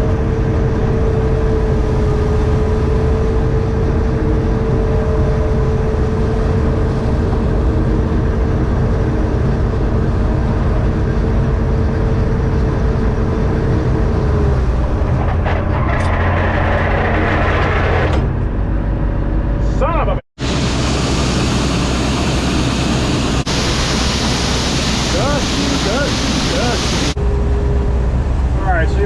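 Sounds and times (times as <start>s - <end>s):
steady machine whine: 0.0s - 19.6s, 20.4s - 29.0s
combine engine drone: 0.0s - 29.0s
rushing hiss: 21.2s - 27.2s.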